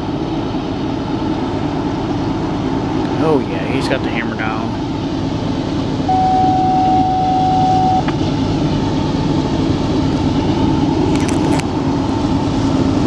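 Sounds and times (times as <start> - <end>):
freight train passing: 0.0 - 11.0
short crackles: 11.0 - 11.7.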